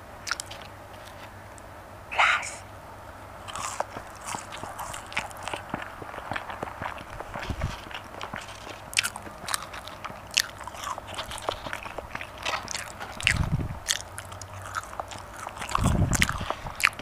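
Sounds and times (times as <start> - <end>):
biting and chewing food: 0.0 - 1.7, 3.4 - 17.0
wet mouth clicks and smacks: 0.2 - 0.7, 9.9 - 17.0.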